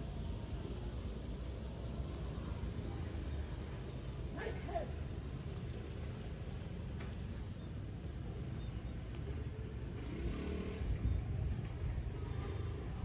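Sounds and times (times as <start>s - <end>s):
motorcycle engine revving: 9.8s - 11.6s.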